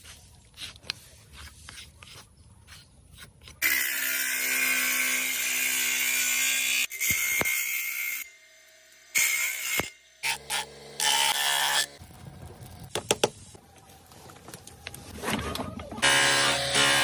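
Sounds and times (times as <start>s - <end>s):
power tool grinding horn: 16.0s - 17.0s.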